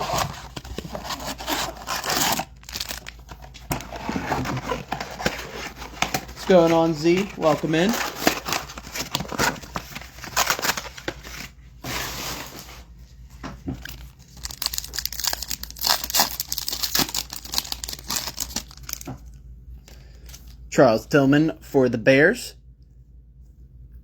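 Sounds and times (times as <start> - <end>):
wrapper tearing and crinkling: 0.0 - 11.5, 13.8 - 19.1.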